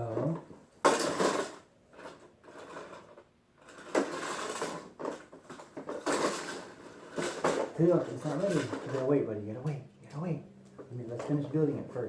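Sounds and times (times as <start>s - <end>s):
plastic toy track pieces clattering: 0.1s - 9.2s.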